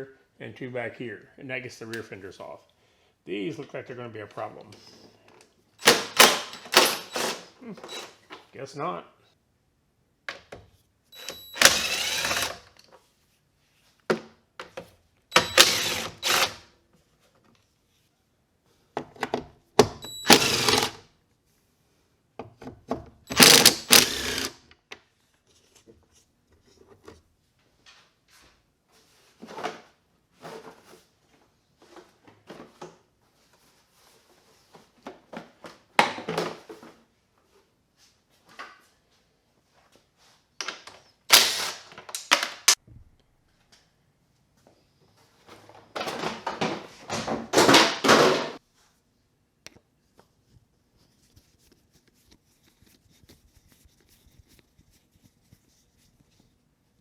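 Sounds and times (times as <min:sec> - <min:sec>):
parts and tools clunking: 0:05.8 - 0:08.5
cordless power driver spinning: 0:11.2 - 0:12.8, 0:15.3 - 0:16.6, 0:20.0 - 0:21.0, 0:23.3 - 0:24.6, 0:41.3 - 0:41.8.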